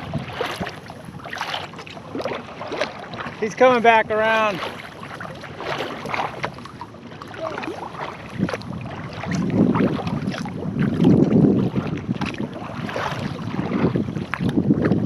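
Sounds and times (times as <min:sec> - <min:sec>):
wind gusting against microphone: 0:00.0 - 0:01.3, 0:07.4 - 0:15.0
water lapping against hull: 0:00.0 - 0:15.0.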